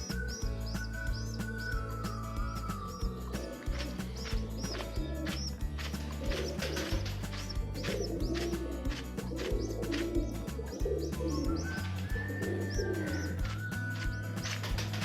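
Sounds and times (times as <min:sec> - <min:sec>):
high rising cheeps: 0:00.0 - 0:05.6
background music: 0:00.0 - 0:15.0
pigeons cooing: 0:02.9 - 0:05.5, 0:06.2 - 0:14.9.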